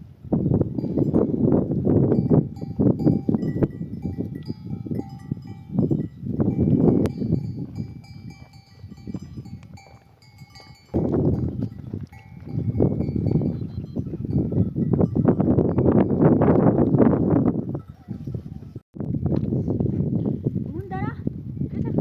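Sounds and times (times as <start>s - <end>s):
animal bells clinking: 0.8s - 16.5s, 17.2s - 18.8s.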